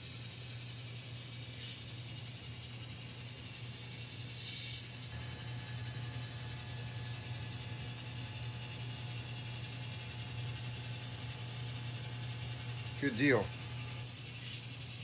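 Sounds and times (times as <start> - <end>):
model train motor hum: 5.1 - 14.1.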